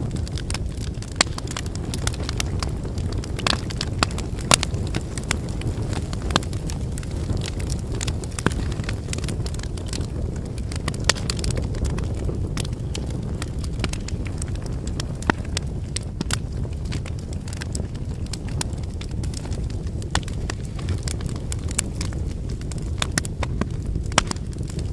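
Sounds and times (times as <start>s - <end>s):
campfire crackling and popping: 0.0s - 24.9s
fire low rumble: 0.0s - 24.9s.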